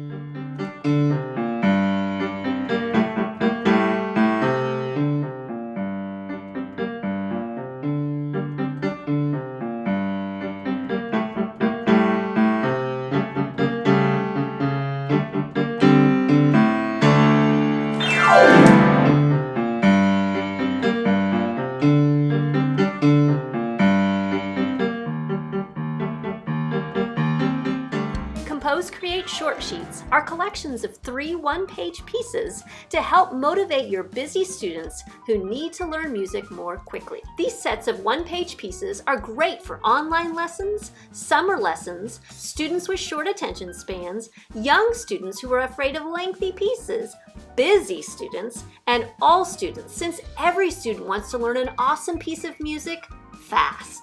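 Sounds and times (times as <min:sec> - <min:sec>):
piano glissando: 0:00.0 - 0:30.4
fast solo piano piece: 0:00.0 - 0:40.3, 0:45.7 - 0:54.0.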